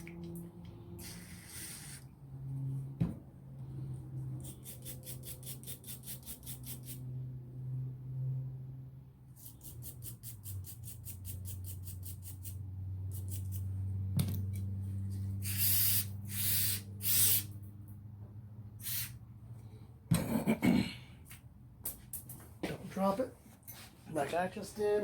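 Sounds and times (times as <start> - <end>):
spray cleaner hissing: 1.0 - 2.0, 15.4 - 17.5, 18.8 - 19.1.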